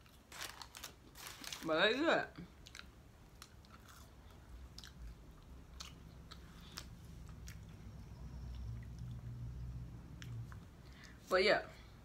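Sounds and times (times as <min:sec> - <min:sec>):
low steady hum: 0:00.0 - 0:12.0
person chewing food: 0:02.4 - 0:09.4.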